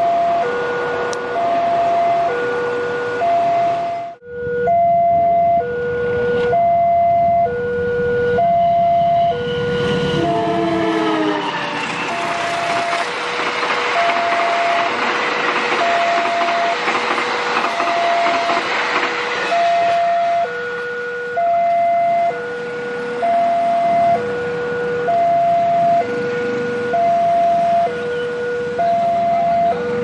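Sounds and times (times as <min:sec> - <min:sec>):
train wheels on rails: 0:09.3 - 0:22.4
level-crossing alarm ding-dong: 0:14.0 - 0:17.0, 0:19.5 - 0:22.4.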